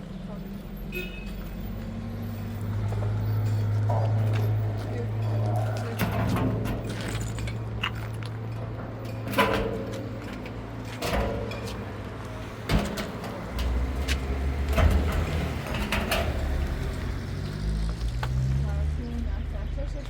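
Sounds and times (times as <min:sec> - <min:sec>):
knocks and clunks: 0:02.8 - 0:18.7.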